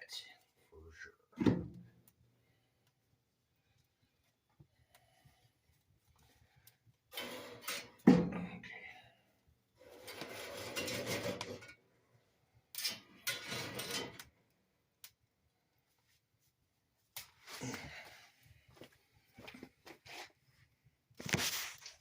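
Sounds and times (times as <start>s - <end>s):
rubbing and scraping: 9.8s - 11.7s.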